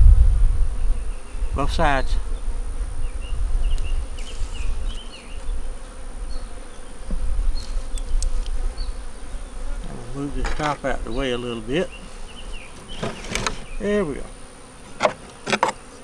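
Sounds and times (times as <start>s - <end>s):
uneven low rumble: 0.0s - 4.1s
bees buzzing: 0.3s - 16.0s.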